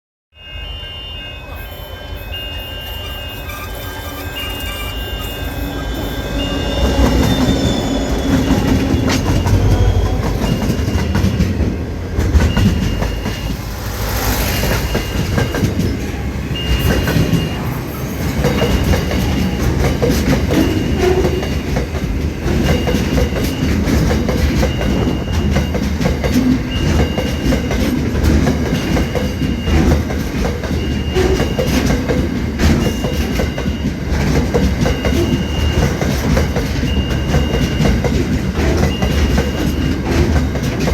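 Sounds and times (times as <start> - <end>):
short high beep: 0.4 - 11.8, 12.4 - 21.8, 22.6 - 25.9, 38.8 - 40.1
freight train rumbling: 1.0 - 40.9
wheels clacking over rail joints: 6.6 - 40.9.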